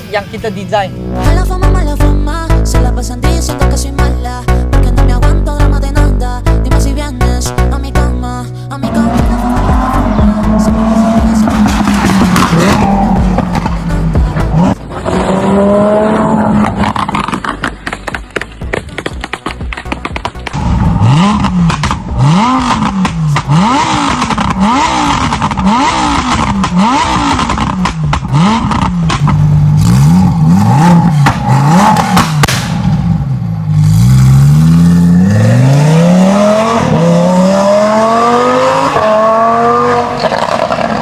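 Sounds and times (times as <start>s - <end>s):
sports car engine revving: 8.8s - 18.0s, 20.4s - 41.0s.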